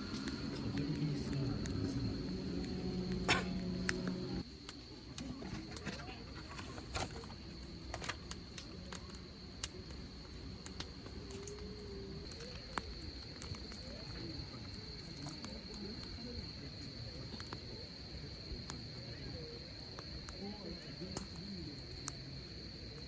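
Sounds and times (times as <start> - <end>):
campfire crackling and popping: 0.0 - 23.0
faint distant voices: 0.0 - 23.0
insects trilling: 0.0 - 23.0.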